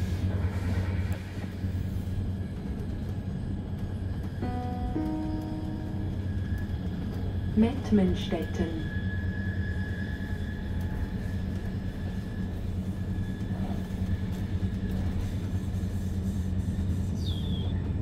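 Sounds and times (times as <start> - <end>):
train rumble from inside coach: 0.0 - 18.0.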